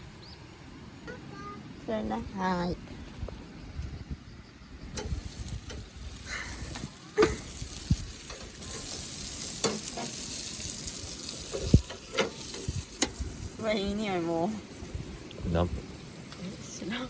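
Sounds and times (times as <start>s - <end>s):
food sizzling in a pan: 5.0s - 17.0s.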